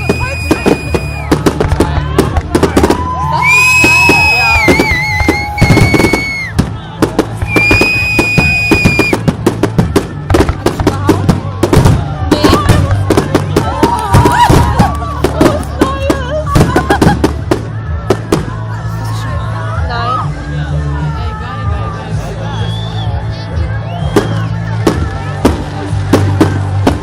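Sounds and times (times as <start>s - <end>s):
whistling fireworks: 0.0s - 10.0s, 23.8s - 25.1s
fireworks bangs and crackling: 0.0s - 19.0s, 23.8s - 27.0s.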